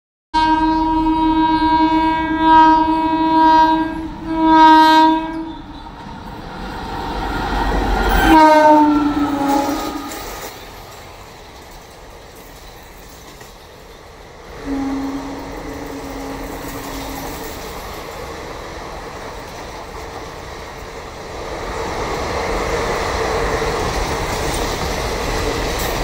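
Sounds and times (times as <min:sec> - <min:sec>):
locomotive air horn: 0:00.4 - 0:05.8, 0:08.1 - 0:10.4, 0:14.6 - 0:17.5
train rushing past: 0:00.4 - 0:26.0.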